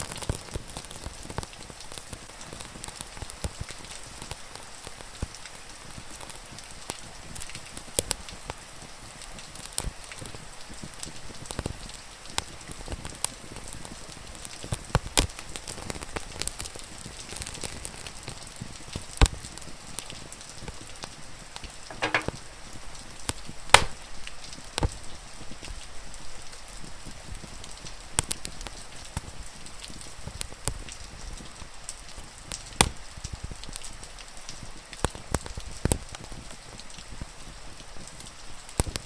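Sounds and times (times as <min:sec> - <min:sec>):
rain falling: 0:00.0 - 0:39.0
wood fire crackling and popping: 0:21.9 - 0:25.0, 0:27.4 - 0:31.5, 0:34.9 - 0:37.1, 0:38.2 - 0:39.0.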